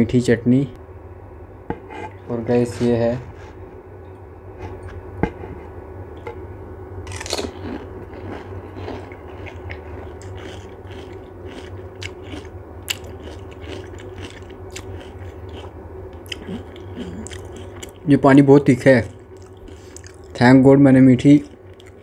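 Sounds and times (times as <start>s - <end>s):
low hum: 0.0s - 22.0s
crisp shells crunching: 7.1s - 15.7s.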